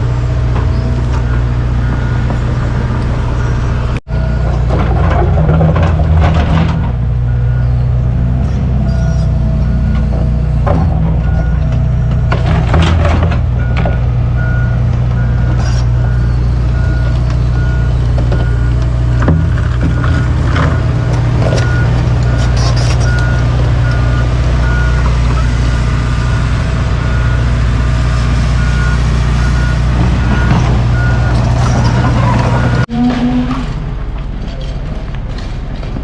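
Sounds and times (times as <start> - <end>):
heavy diesel machine running: 0.0 - 36.0
reversing alarm beeping: 1.0 - 4.6, 7.3 - 10.6, 13.6 - 32.9.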